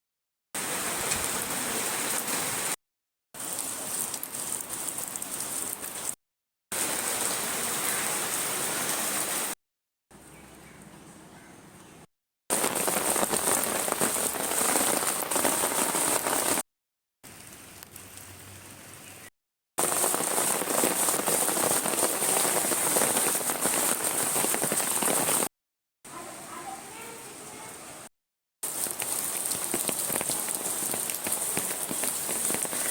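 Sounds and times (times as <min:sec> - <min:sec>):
rain pattering: 0:00.6 - 0:02.8, 0:03.4 - 0:06.2, 0:06.8 - 0:09.6, 0:12.5 - 0:16.6, 0:17.2 - 0:19.0, 0:19.8 - 0:25.5, 0:28.6 - 0:32.9.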